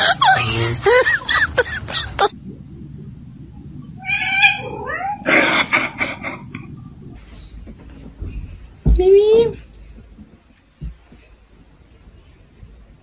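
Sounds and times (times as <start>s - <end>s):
cat meowing: 3.9s - 6.7s.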